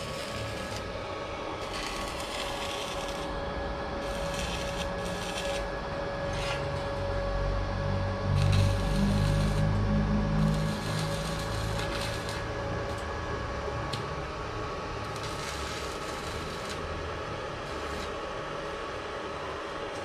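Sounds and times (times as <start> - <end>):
workshop background hum: 0.0 - 20.0
bass-heavy music: 7.3 - 13.8.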